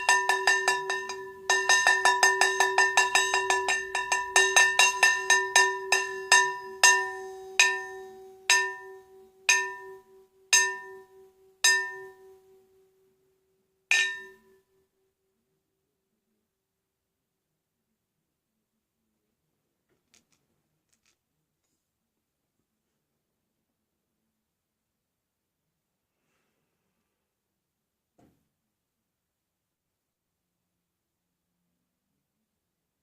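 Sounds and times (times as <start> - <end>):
metal bell ringing: 0.0 - 12.4, 13.9 - 14.6.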